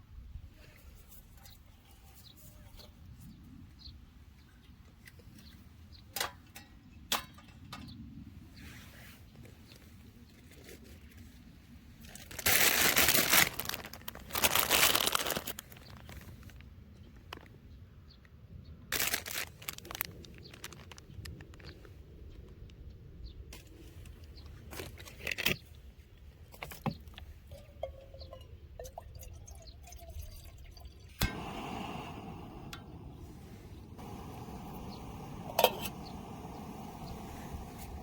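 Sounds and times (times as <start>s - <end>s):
packaging crinkling and tearing: 12.0s - 16.6s, 18.9s - 21.7s.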